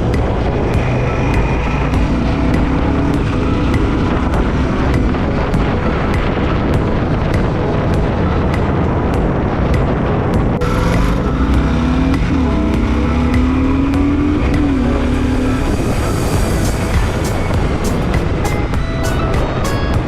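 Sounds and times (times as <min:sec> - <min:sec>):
wind noise on microphone: 0:00.0 - 0:20.0
motorcycle engine running: 0:10.6 - 0:18.4.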